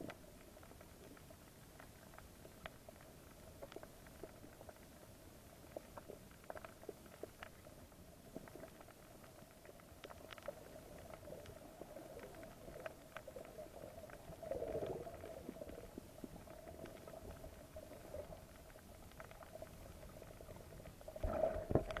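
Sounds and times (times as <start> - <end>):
faint underwater hum: 0.0 - 22.0
small clicks and crackles: 0.0 - 22.0
muffled underwater swell: 20.5 - 22.0.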